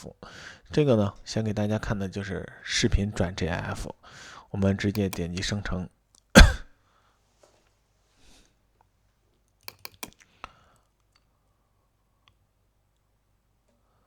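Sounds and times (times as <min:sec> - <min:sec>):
computer mouse clicks: 0:04.9 - 0:05.5, 0:09.5 - 0:11.3.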